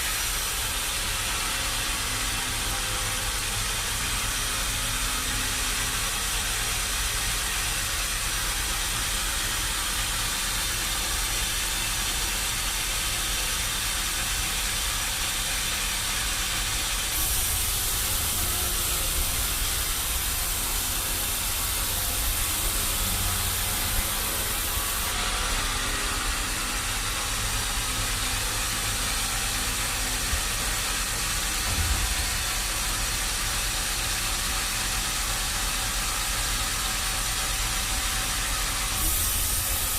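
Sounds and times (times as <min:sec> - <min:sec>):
sawmill machinery humming: 0:00.0 - 0:39.9
harsh high hiss: 0:16.3 - 0:30.5, 0:38.8 - 0:39.9.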